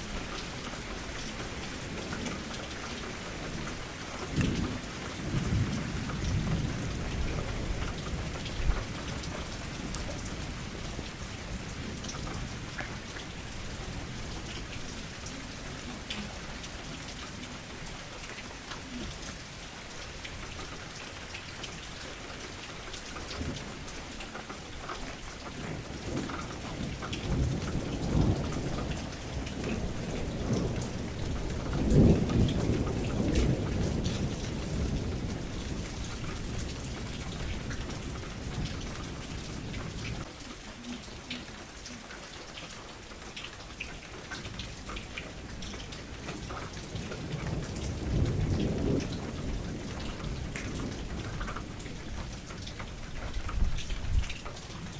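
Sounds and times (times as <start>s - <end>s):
low thunder rumbling: 0.0s - 18.2s, 25.6s - 40.9s, 44.5s - 54.9s
heavy rain: 0.0s - 54.9s.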